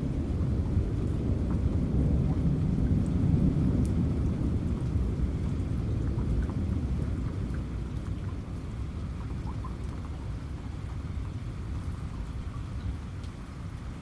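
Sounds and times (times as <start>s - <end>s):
rolling thunder: 0.0s - 8.0s
steady rain: 0.0s - 14.0s.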